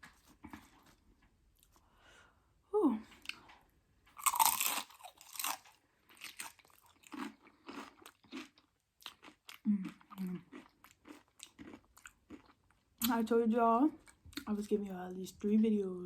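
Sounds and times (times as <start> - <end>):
crunching chips: 4.2 - 12.6
chewing: 4.2 - 12.9.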